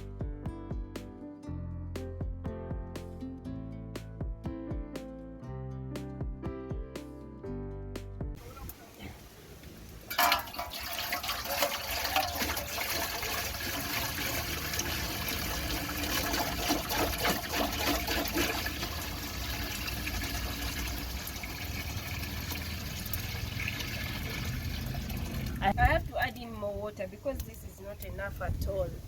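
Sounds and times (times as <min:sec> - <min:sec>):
water pouring into a container: 0:10.0 - 0:25.7.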